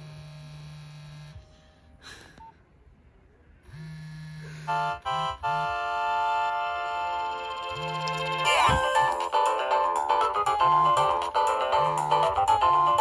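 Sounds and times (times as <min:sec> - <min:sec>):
phone vibration buzzing: 0:00.0 - 0:01.9, 0:03.7 - 0:09.1
electronic ringtone melody: 0:04.4 - 0:13.0.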